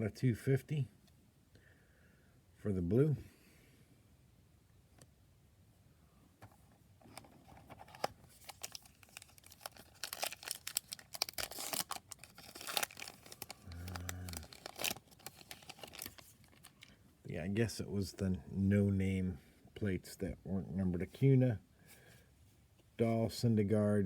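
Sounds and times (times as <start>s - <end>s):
foil wrapper crinkling: 7.0s - 17.0s.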